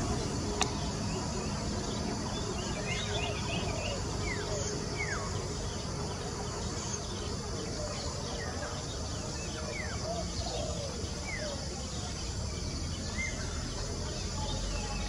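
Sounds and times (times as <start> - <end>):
insects hissing: 0.0 - 15.0.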